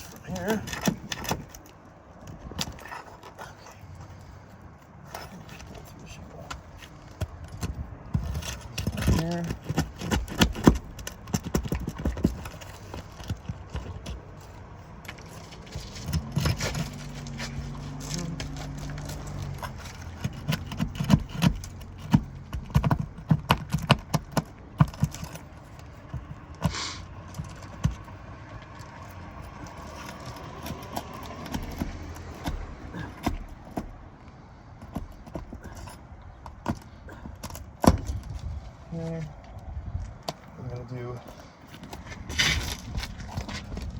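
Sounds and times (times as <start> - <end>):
hand tool clicking on nails: 28.9 - 33.8.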